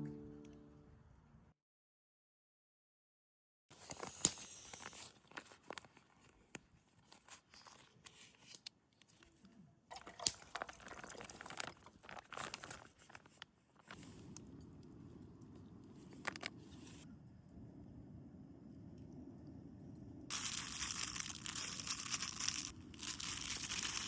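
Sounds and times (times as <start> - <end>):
rustling and crinkling: 3.7 - 9.5, 10.6 - 14.3, 20.3 - 24.0.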